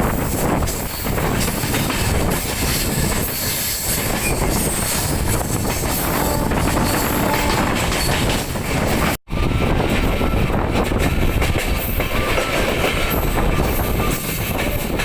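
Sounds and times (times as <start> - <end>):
train rumbling: 0.0 - 15.0
wheels clattering over rails: 0.6 - 9.2.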